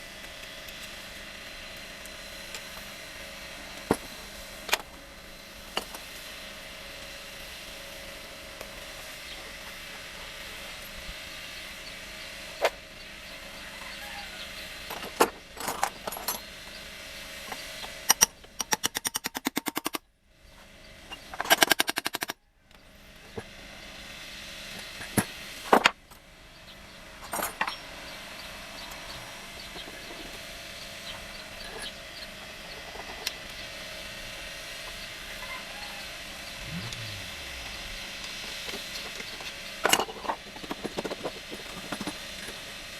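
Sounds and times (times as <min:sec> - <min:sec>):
wrench ratchet clicking: 0:18.1 - 0:20.0
steady low hum: 0:34.9 - 0:39.9.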